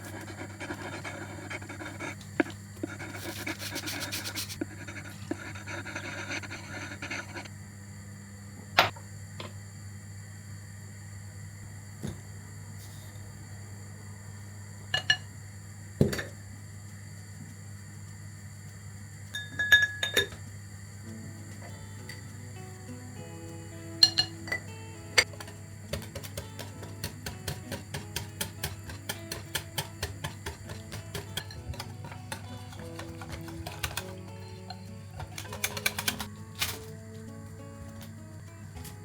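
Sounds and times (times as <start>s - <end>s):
scraping and rustling: 0.0s - 7.4s
steady low hum: 0.0s - 39.0s
glass and dishes clinking: 19.4s - 20.4s, 24.0s - 25.6s.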